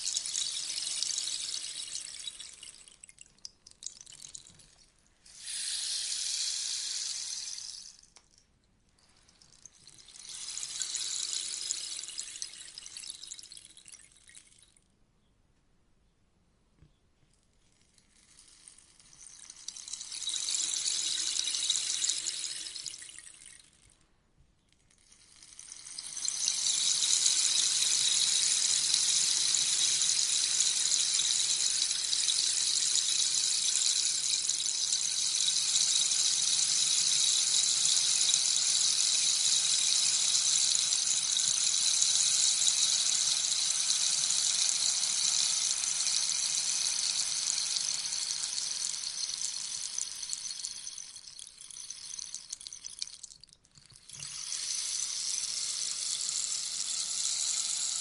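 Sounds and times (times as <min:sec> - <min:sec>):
rainstick trickling hiss: 0:00.0 - 0:08.4, 0:09.0 - 0:14.7, 0:17.6 - 0:24.0, 0:24.9 - 0:58.0.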